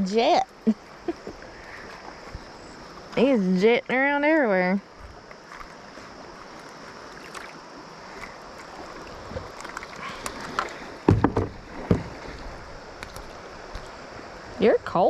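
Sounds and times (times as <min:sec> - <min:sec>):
water lapping around a kayak: 0:00.0 - 0:15.0
loud thumps or splashes: 0:11.0 - 0:12.3.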